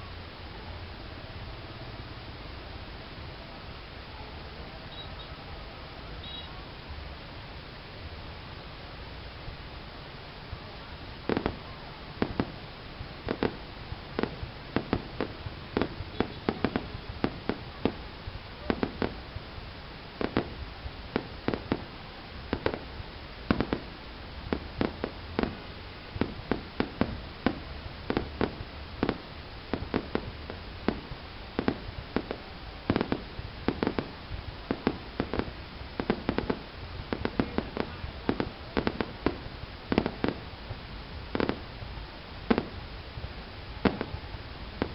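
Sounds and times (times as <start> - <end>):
steady background noise: 0.0 - 44.9
fireworks bangs and pops: 11.0 - 44.9.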